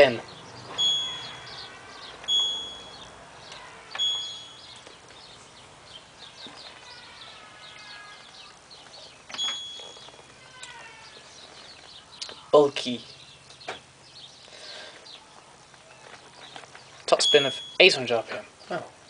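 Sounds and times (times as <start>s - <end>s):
faint chirping: 0.3s - 18.8s
washing machine beeping: 0.7s - 3.1s, 4.0s - 4.7s, 9.3s - 10.2s, 17.2s - 17.9s.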